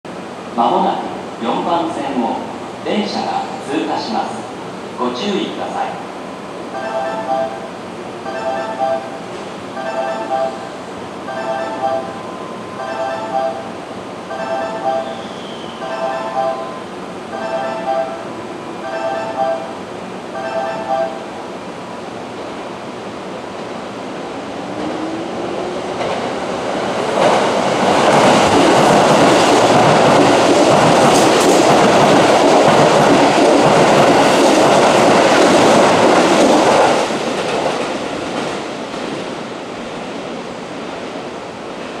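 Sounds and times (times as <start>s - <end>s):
electric train rumbling past: 0.1s - 42.0s
sharp clicks of train cars: 27.0s - 39.2s.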